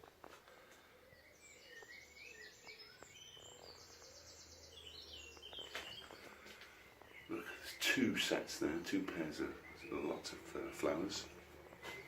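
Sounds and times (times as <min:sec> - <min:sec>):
birds singing: 0:00.0 - 0:12.0.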